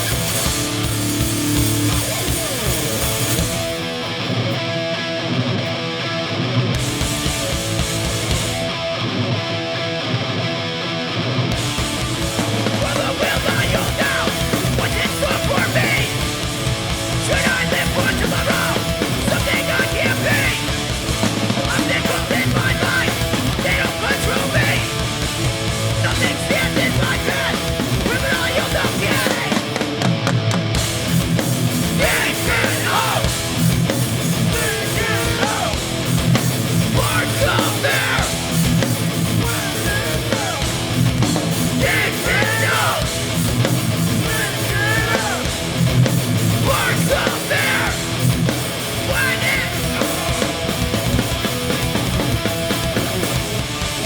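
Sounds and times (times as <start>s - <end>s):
live punk band playing: 0.0s - 54.0s
shouted vocals: 12.6s - 16.4s, 17.0s - 30.0s, 31.8s - 33.6s, 34.2s - 36.0s, 36.8s - 40.9s, 41.6s - 43.4s, 44.0s - 51.2s.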